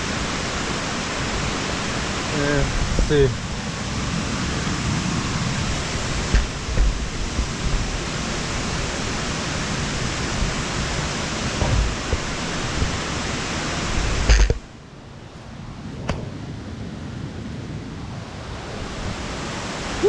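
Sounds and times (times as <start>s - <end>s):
waterfall rushing water: 0.0s - 15.9s, 18.0s - 20.0s
camera handling bumps: 14.3s - 14.6s.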